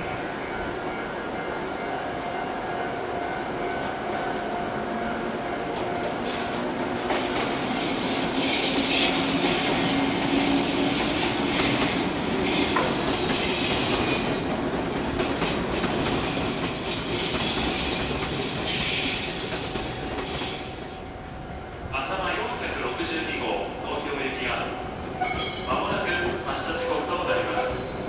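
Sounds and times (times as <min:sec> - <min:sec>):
train rumble and hiss: 0:00.0 - 0:28.0
high-pitched wheel squeal: 0:25.2 - 0:25.7.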